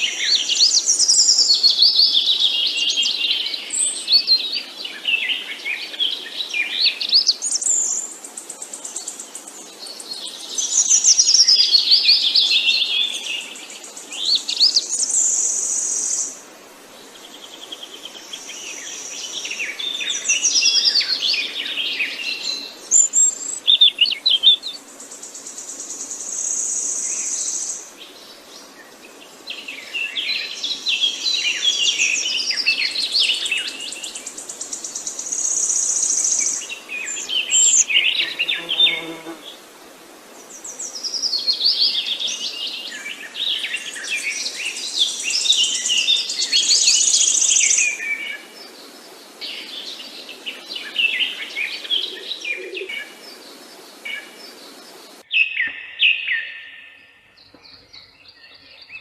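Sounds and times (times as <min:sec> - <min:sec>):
songbirds chirping and singing: 0:17.0 - 0:39.4, 0:40.4 - 0:59.0.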